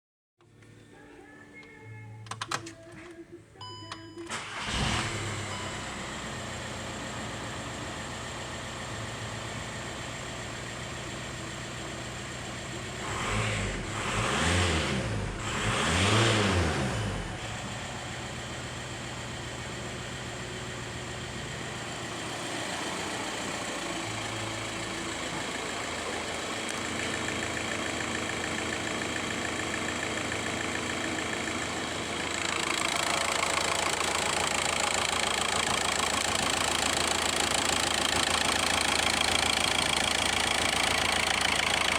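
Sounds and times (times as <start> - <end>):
car engine idling: 1.6 - 14.5, 15.2 - 41.9
engine revving: 4.3 - 7.4, 12.8 - 19.4, 21.8 - 41.9.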